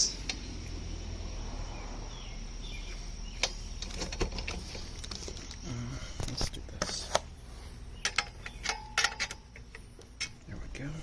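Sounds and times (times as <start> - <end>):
steady low hum: 0.0 - 11.0
metal clicks and knocks: 8.0 - 10.4.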